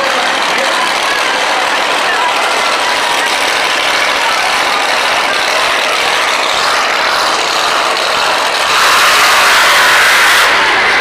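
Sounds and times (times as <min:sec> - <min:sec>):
racing vehicle engines: 0:00.0 - 0:11.0.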